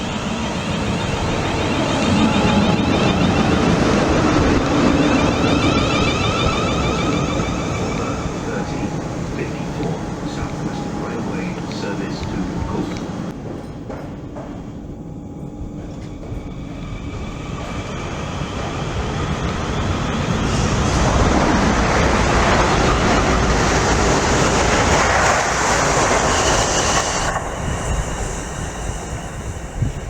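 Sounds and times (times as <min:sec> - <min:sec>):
train passing: 0:00.0 - 0:30.0.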